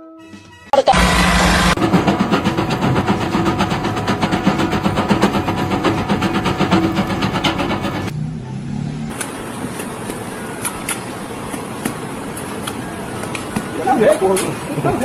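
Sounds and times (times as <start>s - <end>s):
diesel engine rattling: 0.9s - 8.2s.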